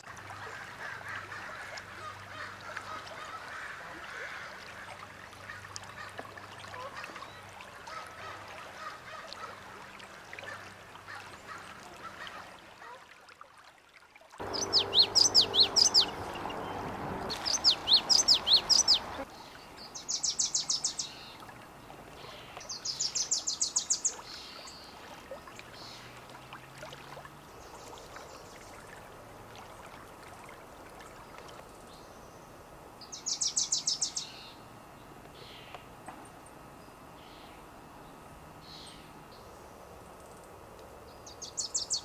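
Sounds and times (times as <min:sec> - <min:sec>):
songbird high trill: 0:14.4 - 0:21.4
faint bird calls: 0:14.4 - 0:21.5, 0:35.3 - 0:36.4, 0:37.2 - 0:37.7
low background hiss: 0:14.4 - 0:42.0.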